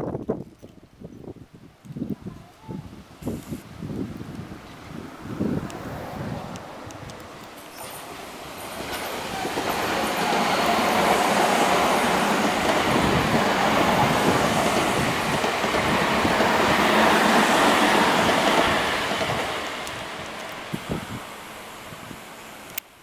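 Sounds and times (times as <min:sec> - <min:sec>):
train wheels clickety-clack on rails: 0:06.4 - 0:21.2.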